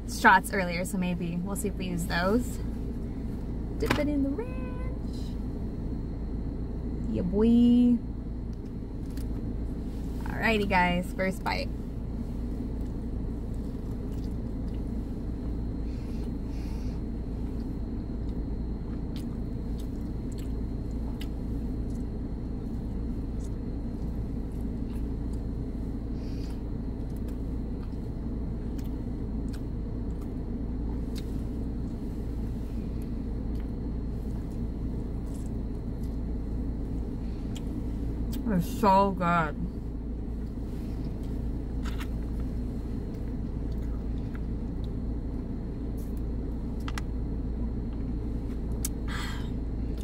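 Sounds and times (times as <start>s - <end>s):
low rumble inside car: 0.0s - 50.0s
person chewing: 12.8s - 14.9s, 17.6s - 22.1s, 26.4s - 30.5s, 40.4s - 42.5s, 43.1s - 45.0s
small mouth clicks: 48.8s - 49.0s.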